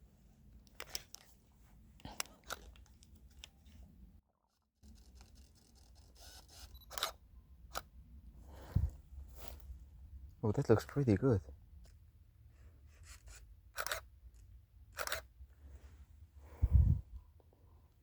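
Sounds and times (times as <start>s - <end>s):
camera shutter clicks: 6.2s - 7.9s, 13.8s - 14.1s, 14.9s - 15.3s.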